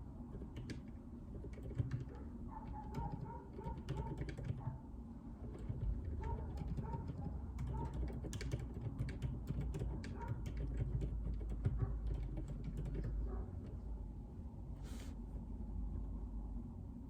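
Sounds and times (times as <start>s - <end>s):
low room rumble: 0.0s - 17.0s
mechanical keyboard typing: 0.3s - 4.7s, 5.4s - 13.3s.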